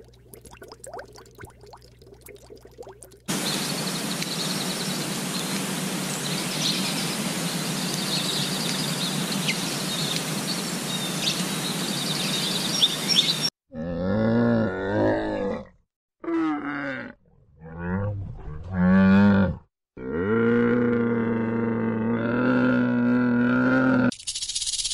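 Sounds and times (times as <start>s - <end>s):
outdoor background hiss: 3.3s - 13.5s
small birds chirping: 3.3s - 13.5s.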